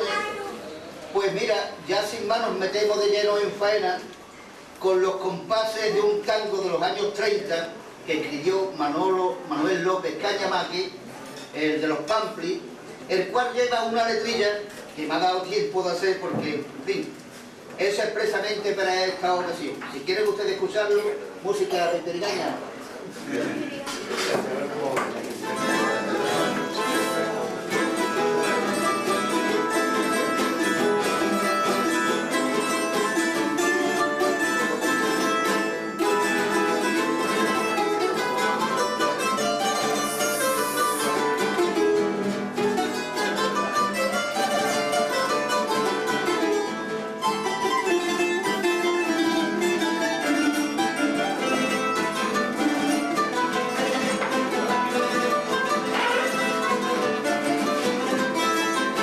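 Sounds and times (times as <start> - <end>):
plucked string trio playing: 22.7 - 59.0.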